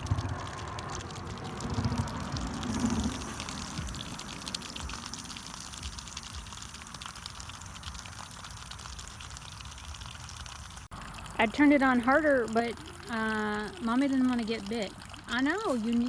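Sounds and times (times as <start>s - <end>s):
low rumble: 0.0s - 6.5s
water pouring onto ground: 0.0s - 16.0s.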